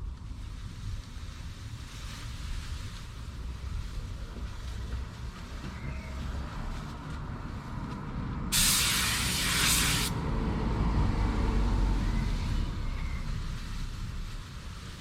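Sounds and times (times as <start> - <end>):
steady low rumble: 0.0 - 15.0
spray gun air hiss: 8.5 - 10.2.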